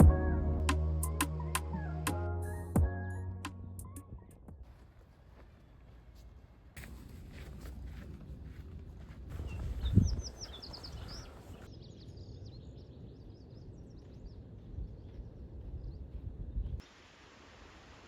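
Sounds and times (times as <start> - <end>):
small birds chirping: 9.3 - 16.8.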